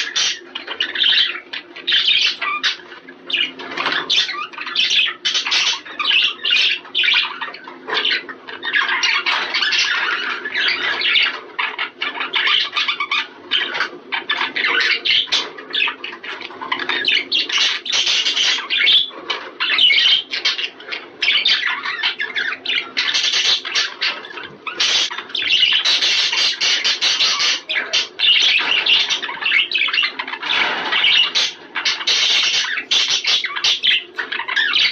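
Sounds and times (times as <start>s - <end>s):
budgerigars chattering: 0.0s - 34.9s.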